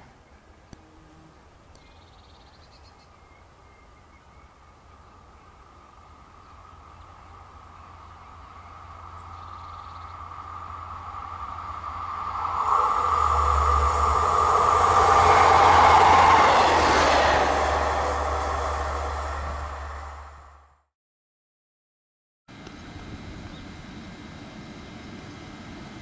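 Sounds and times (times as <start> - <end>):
wheels rushing on rails: 0.0 - 20.8
electric train passing: 4.7 - 20.8
steady whine: 5.1 - 20.8.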